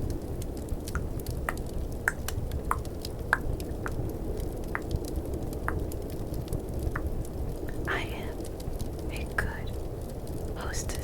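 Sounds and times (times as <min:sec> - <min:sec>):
fireplace crackle: 0:00.0 - 0:11.0
snowstorm wind rush: 0:00.0 - 0:11.0
tongue clicks: 0:00.9 - 0:03.5.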